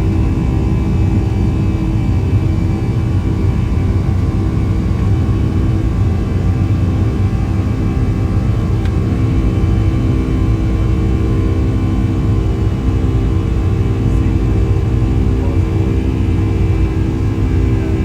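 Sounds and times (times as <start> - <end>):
jet cabin engine rumble: 0.0 - 18.0
steady engine tones: 8.2 - 18.0.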